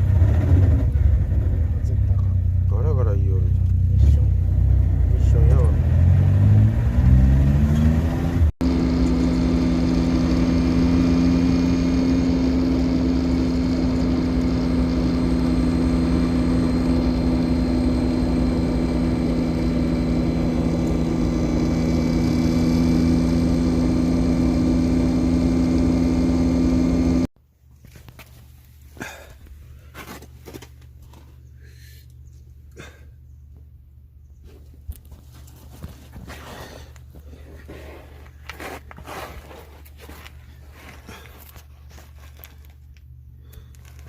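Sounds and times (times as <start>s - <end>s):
car engine accelerating and droning: 0.0s - 27.3s.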